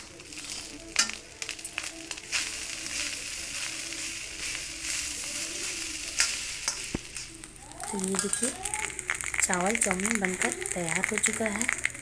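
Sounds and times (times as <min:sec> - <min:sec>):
fried rice sizzling: 0:00.0 - 0:12.0.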